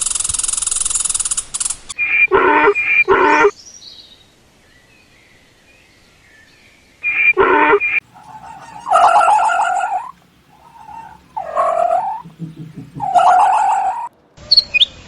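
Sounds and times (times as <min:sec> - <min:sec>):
harsh bird calls: 0:08.0 - 0:14.1
dense rapid bird buzz: 0:08.1 - 0:14.1.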